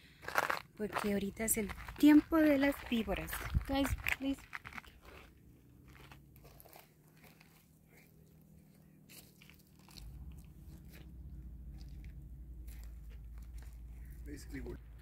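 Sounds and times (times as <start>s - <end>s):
footsteps crunching on gravel: 0.2s - 14.3s
low rumble: 9.8s - 15.0s.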